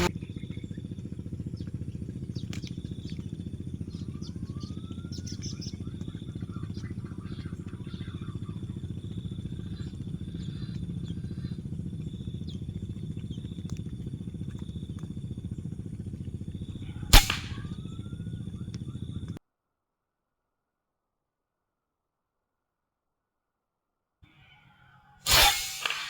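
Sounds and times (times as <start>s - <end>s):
steady low rumble: 0.0s - 19.4s
air rifle shot: 16.8s - 19.0s, 25.3s - 26.0s.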